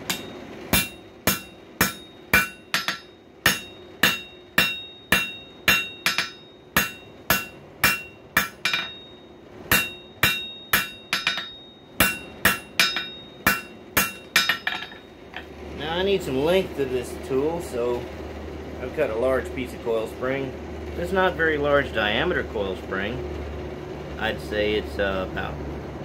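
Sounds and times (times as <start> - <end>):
hammer striking steel on anvil: 0.0 - 15.5.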